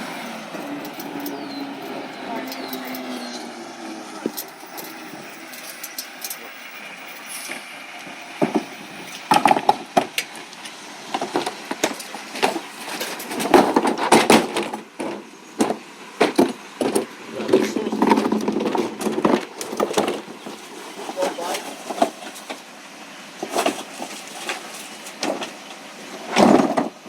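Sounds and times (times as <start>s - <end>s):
recycling truck running: 0.0s - 27.0s
sharp knocks and clattering: 7.4s - 22.6s, 23.4s - 27.0s.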